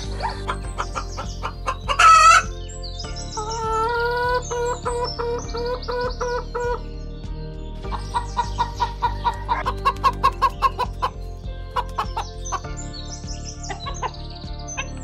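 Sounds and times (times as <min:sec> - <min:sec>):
chickens clucking: 0:00.0 - 0:02.5, 0:03.4 - 0:06.8, 0:07.9 - 0:12.7.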